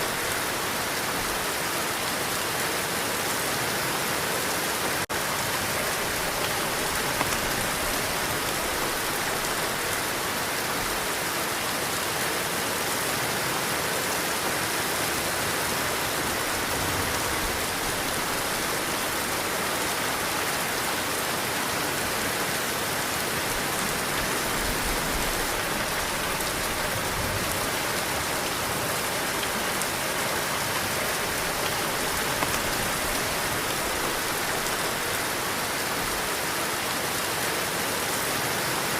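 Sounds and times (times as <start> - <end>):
heavy rain hissing: 0.0 - 38.9
wind: 0.0 - 38.9.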